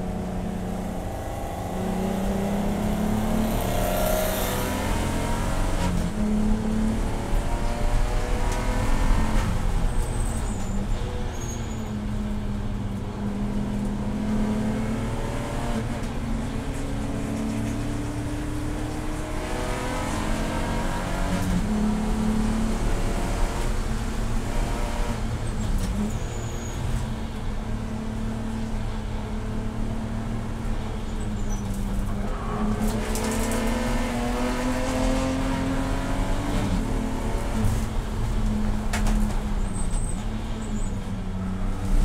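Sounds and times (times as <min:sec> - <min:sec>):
race car engine revving: 0:32.3 - 0:37.9.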